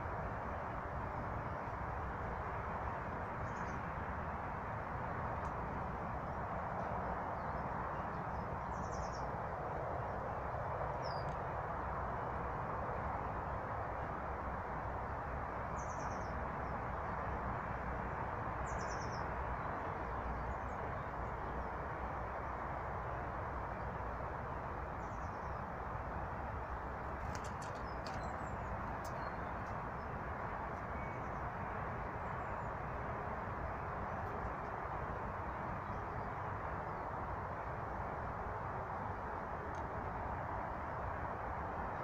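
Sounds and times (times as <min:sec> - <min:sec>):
steady rushing noise: 0:00.0 - 0:42.0
small birds chirping: 0:07.4 - 0:09.3, 0:11.0 - 0:11.4, 0:18.6 - 0:20.8, 0:27.2 - 0:30.2.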